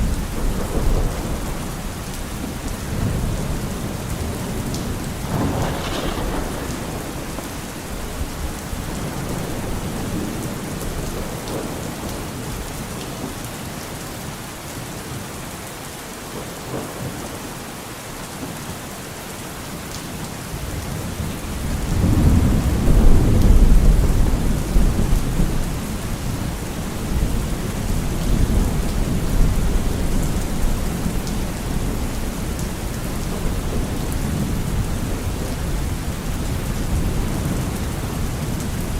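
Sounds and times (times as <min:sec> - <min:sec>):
thunder rumbling: 0:00.0 - 0:12.7, 0:20.7 - 0:38.9
steady rain falling: 0:00.0 - 0:38.9.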